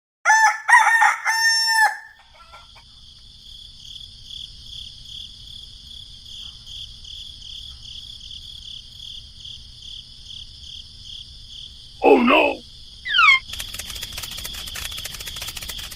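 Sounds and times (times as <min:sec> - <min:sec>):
rooster crowing: 0:00.2 - 0:02.8
high insect drone: 0:02.8 - 0:15.9.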